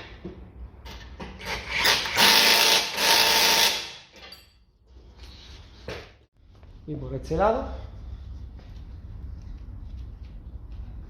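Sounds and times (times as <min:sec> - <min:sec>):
power ratchet running: 0:01.7 - 0:04.0.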